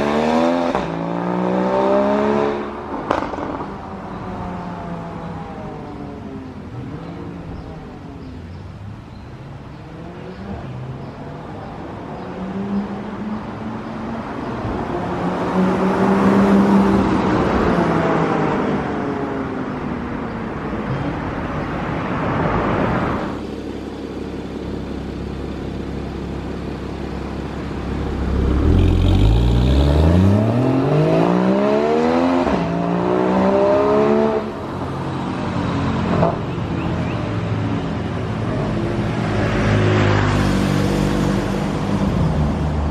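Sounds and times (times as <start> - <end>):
car engine accelerating: 23.8 - 34.6.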